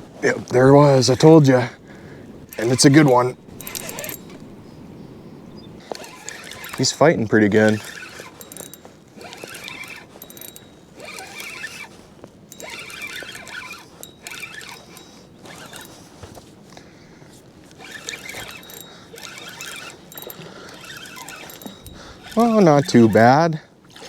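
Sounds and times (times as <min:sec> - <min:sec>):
fishing reel gears ratcheting: 0:02.3 - 0:04.9, 0:05.5 - 0:16.4, 0:17.6 - 0:24.0.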